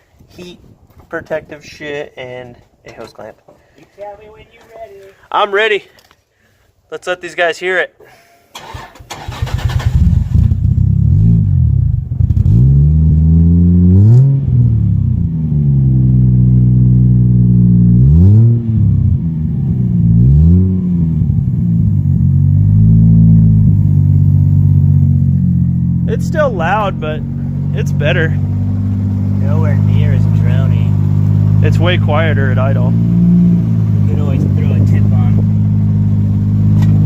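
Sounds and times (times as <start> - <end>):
car engine starting: 8.5 - 37.0
car engine idling and revving: 9.1 - 37.0.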